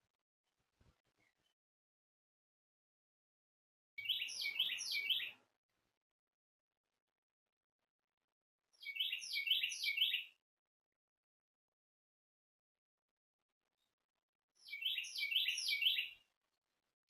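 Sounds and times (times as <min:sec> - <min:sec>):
songbird singing: 0:04.0 - 0:05.4, 0:08.8 - 0:10.4, 0:14.6 - 0:16.2.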